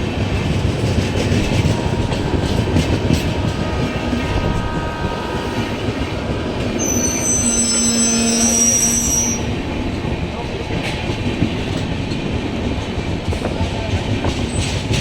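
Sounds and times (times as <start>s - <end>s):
train rumbling on rails: 0.0s - 15.0s
train wheels squealing: 6.8s - 9.6s.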